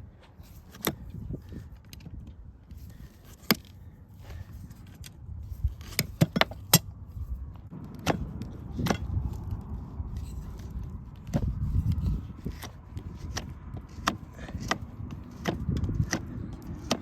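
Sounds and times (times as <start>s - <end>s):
tools clicking on horse hoof: 7.8s - 17.0s.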